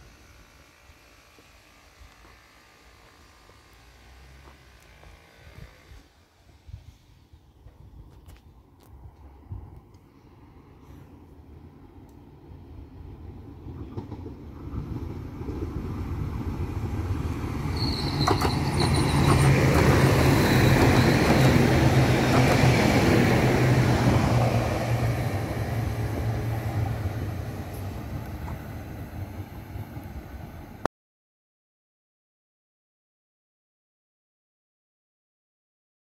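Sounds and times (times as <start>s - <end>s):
train passing with low hum: 0.0s - 30.9s
brief high squeal: 17.7s - 19.7s.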